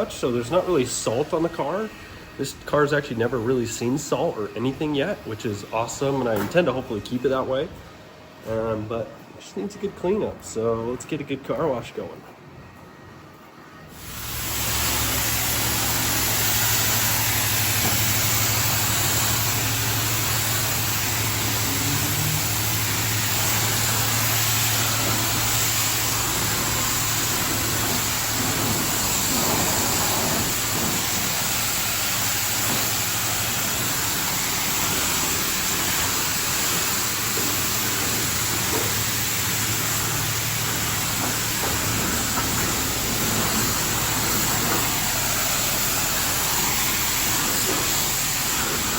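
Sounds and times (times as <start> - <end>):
pressure washer spraying water: 13.9 - 48.9.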